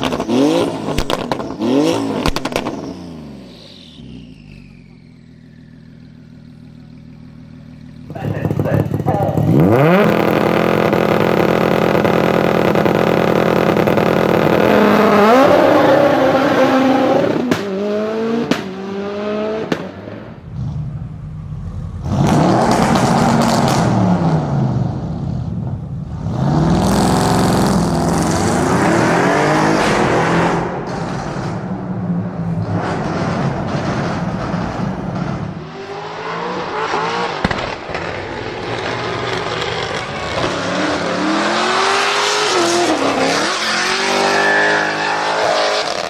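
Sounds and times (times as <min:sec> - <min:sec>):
car engine revving: 0:00.0 - 0:46.0
exhaust pops: 0:00.9 - 0:02.9, 0:08.0 - 0:14.6, 0:37.2 - 0:41.1.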